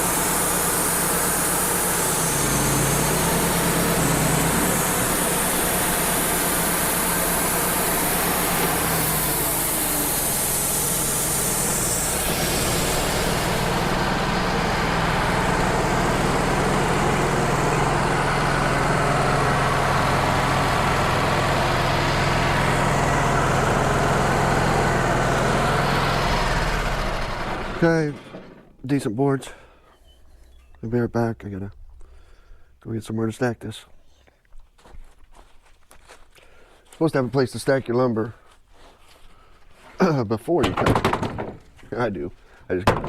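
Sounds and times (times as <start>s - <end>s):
bandsaw blade cutting log: 0.0s - 22.3s
sawmill engine running: 0.0s - 31.8s.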